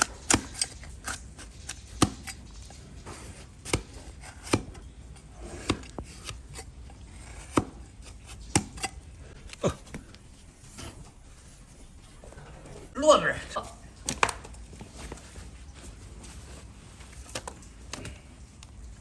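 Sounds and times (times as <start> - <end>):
blade cracking through hoof: 0.0 - 2.6.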